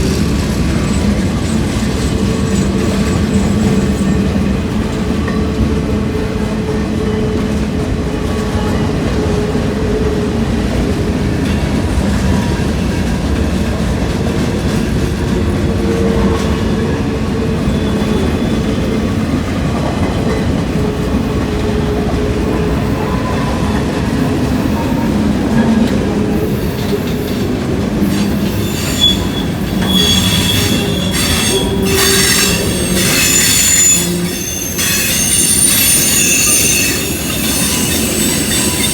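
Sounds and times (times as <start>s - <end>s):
train wheels rumbling on rails: 0.0s - 38.9s
high-pitched wheel squeal: 28.1s - 38.9s.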